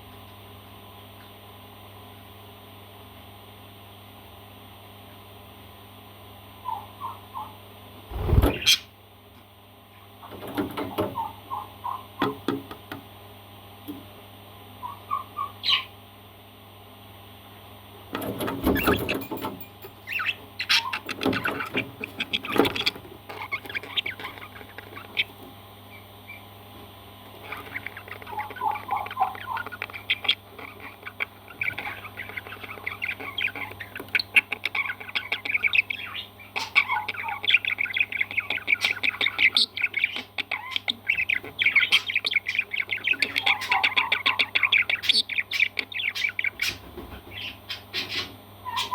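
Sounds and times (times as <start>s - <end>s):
parrot squawking: 8.1s - 8.9s, 20.1s - 25.3s, 27.4s - 48.9s
parrot chirping chatter: 20.0s - 26.5s, 27.4s - 48.9s.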